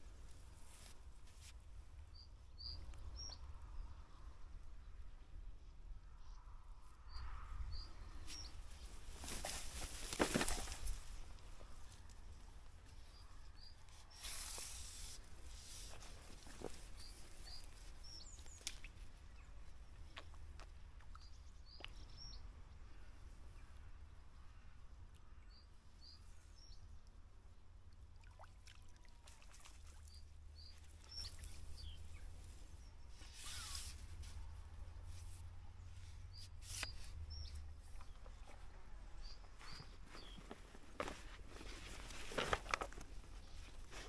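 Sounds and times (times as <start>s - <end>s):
low wind rumble: 1.7s - 13.6s
small bird chirping: 30.0s - 38.6s.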